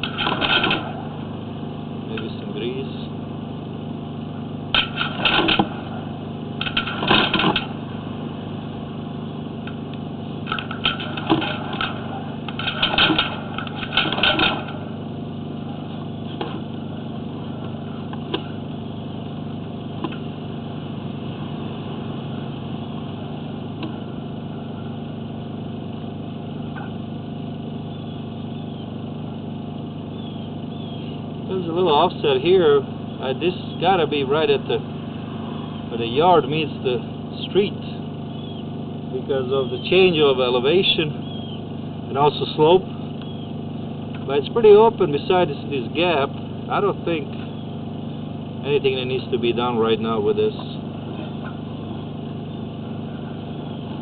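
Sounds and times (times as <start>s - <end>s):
sharp clattering: 0.0s - 1.1s, 4.7s - 6.0s, 6.6s - 7.8s, 10.4s - 15.0s
motor humming: 0.0s - 54.0s.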